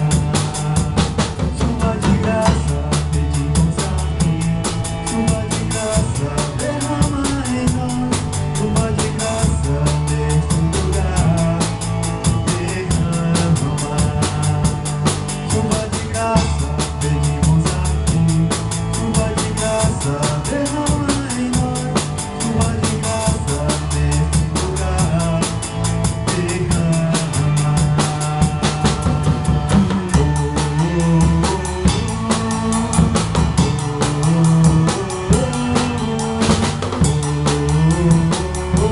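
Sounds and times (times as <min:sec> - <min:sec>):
bass line: 0:00.0 - 0:38.9
drum kit beat: 0:00.0 - 0:38.9
instrumental band music: 0:00.0 - 0:38.9.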